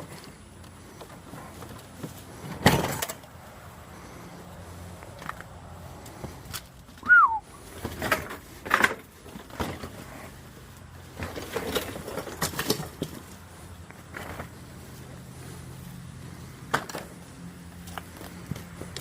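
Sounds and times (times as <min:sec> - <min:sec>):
descending whistle-like tone: 0:07.0 - 0:07.5.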